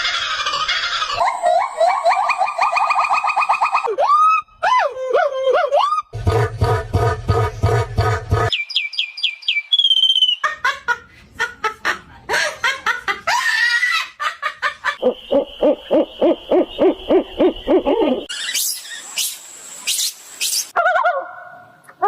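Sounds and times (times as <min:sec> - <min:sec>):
falling bird whistles: 0:08.5 - 0:10.4.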